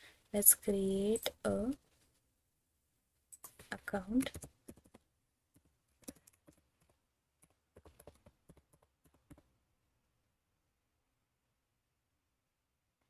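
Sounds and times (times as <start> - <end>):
computer keyboard typing: 3.4 - 9.5.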